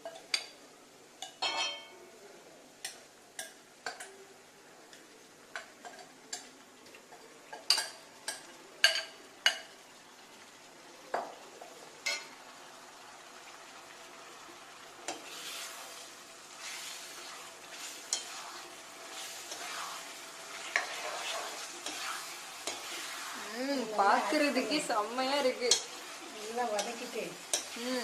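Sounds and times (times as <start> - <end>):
faint frying sizzle: 0.0 - 28.0
metal spoon scraping a pan: 15.1 - 28.0.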